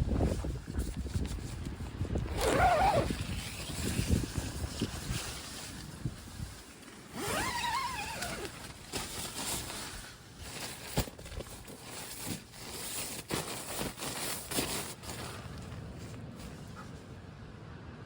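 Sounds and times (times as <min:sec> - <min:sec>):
gear knocking and rustling: 0:06.7 - 0:16.6.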